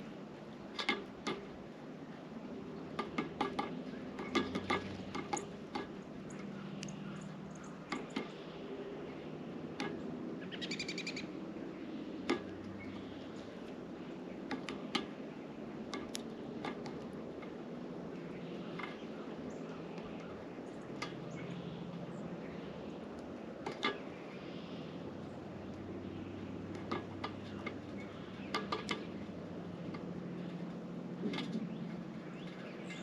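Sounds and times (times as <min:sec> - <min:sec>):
low background hum: 0:00.0 - 0:33.0
bird trill: 0:10.4 - 0:11.3.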